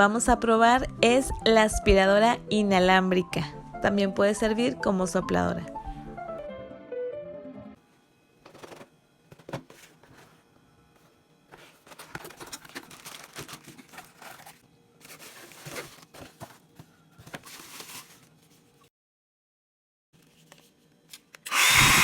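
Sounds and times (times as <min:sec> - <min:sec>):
faint background music: 0:00.0 - 0:07.9
plastic packaging crinkling: 0:11.6 - 0:18.7.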